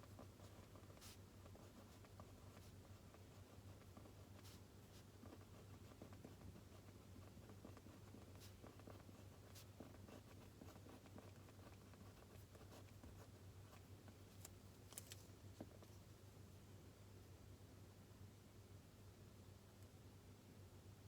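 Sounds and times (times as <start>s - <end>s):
low steady hum: 0.0s - 21.0s
pen scratching on paper: 0.1s - 13.8s.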